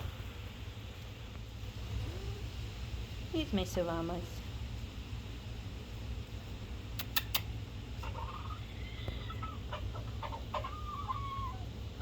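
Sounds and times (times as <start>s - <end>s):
sharp clicks: 7.0s - 7.5s
chickens clucking: 8.0s - 11.8s.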